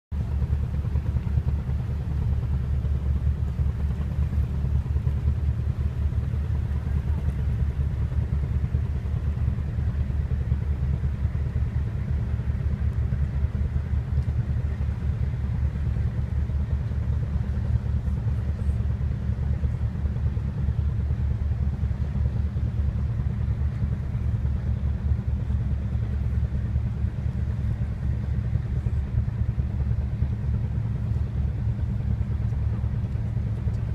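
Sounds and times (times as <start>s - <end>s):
boat engine droning: 0.2s - 33.9s.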